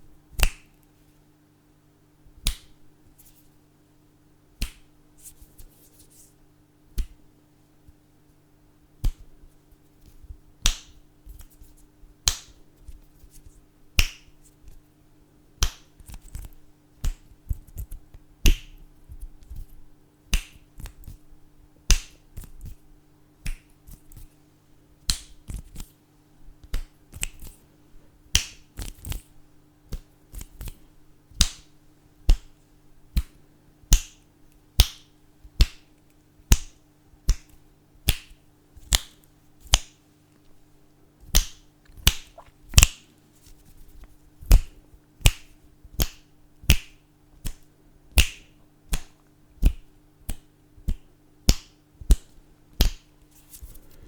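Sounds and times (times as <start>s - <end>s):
faint steady hum: 0.0s - 54.0s
fingers snapping: 0.4s - 0.8s, 2.4s - 3.3s, 4.6s - 4.9s, 7.0s - 7.2s, 10.6s - 11.6s, 12.2s - 12.6s, 14.0s - 14.3s, 15.6s - 18.8s, 20.3s - 21.2s, 21.9s - 22.8s, 23.4s - 24.3s, 25.0s - 25.9s, 26.6s - 27.6s, 28.3s - 29.3s, 31.4s - 31.7s, 32.3s - 32.5s, 33.1s - 34.2s, 34.8s - 35.9s, 36.5s - 40.0s, 41.3s - 43.1s, 44.5s - 53.6s.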